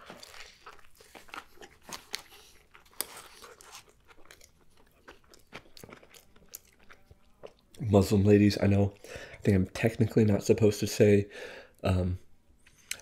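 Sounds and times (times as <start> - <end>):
chewing with moist crunches: 0.0 - 7.9.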